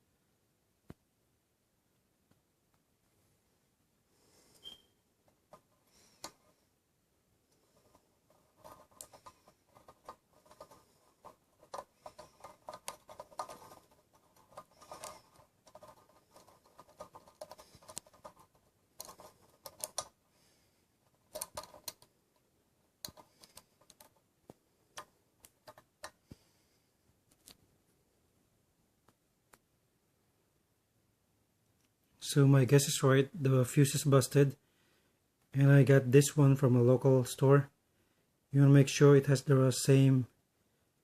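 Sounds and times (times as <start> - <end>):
small clicks taps and scrapes: 4.6 - 6.5, 7.5 - 20.2, 21.0 - 26.5, 27.3 - 27.7.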